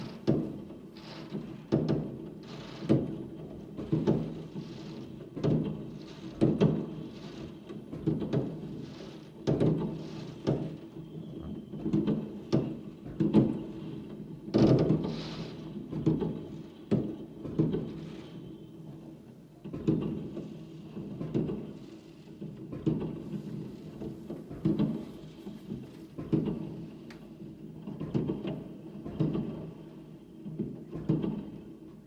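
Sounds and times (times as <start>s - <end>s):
fireworks crackling hiss: 4.2s - 7.7s, 8.5s - 10.8s, 15.1s - 15.8s.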